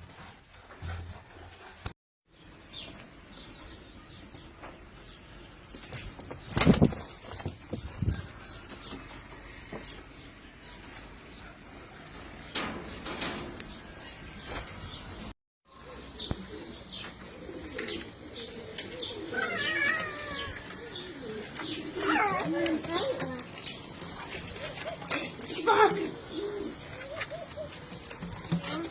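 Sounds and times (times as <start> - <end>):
pigeon wing flaps: 6.3 - 7.7
pigeons cooing: 15.7 - 28.9.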